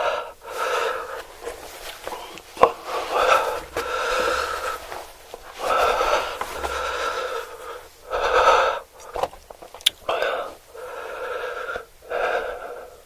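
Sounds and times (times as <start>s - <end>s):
small wet mouth clicks: 9.0s - 10.1s.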